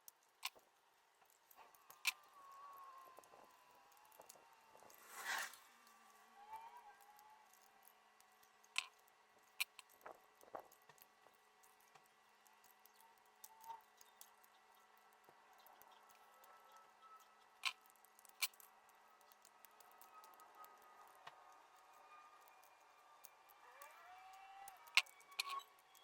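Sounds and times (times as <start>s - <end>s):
light clicks and taps: 0.0s - 5.1s, 7.0s - 26.0s
short hiss: 5.0s - 5.7s.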